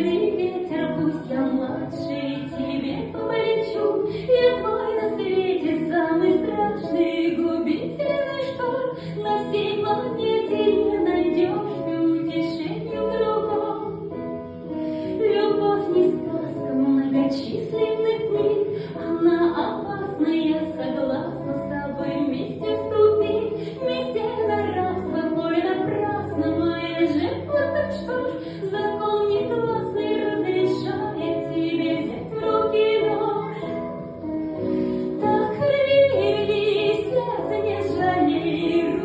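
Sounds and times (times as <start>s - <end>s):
women singing a cappella harmony: 35.2s - 39.0s.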